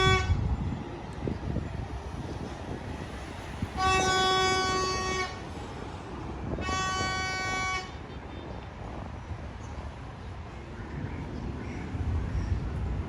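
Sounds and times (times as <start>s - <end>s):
locomotive horn blast: 0.0s - 0.4s, 3.8s - 5.4s, 6.6s - 8.5s
train rumbling: 0.0s - 13.0s.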